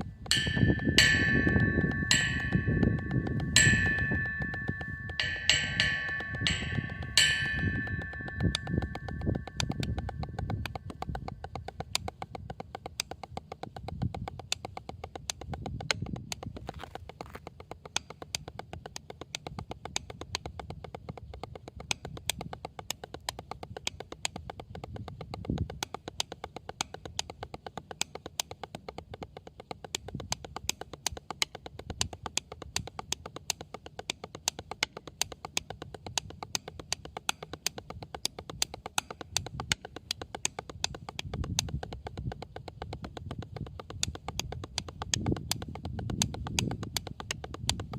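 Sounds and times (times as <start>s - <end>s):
light taps on a drum: 0.2s - 47.9s.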